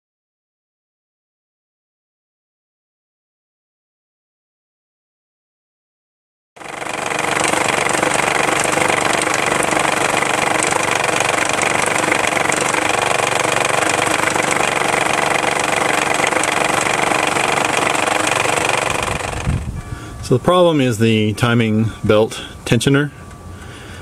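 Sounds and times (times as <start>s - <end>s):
loose timing belt slapping: 6.6s - 19.7s
car engine running: 6.6s - 19.9s.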